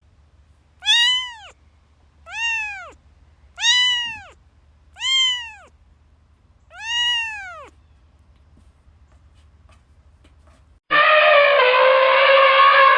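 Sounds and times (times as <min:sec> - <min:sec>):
cat meowing: 0:00.8 - 0:01.6, 0:02.3 - 0:03.0, 0:03.6 - 0:04.4, 0:05.0 - 0:05.7, 0:06.7 - 0:07.8.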